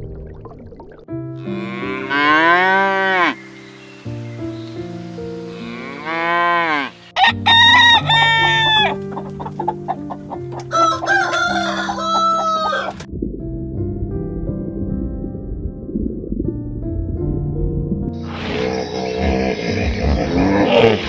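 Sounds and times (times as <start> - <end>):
soft background music: 0.0 - 21.0
rooster crowing: 7.2 - 9.6, 10.2 - 13.1
cow lowing: 18.3 - 21.0.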